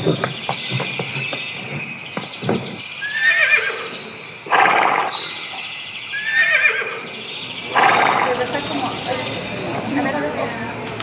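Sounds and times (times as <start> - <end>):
horse whinnying: 3.0 - 5.3, 6.1 - 7.1, 7.7 - 8.5.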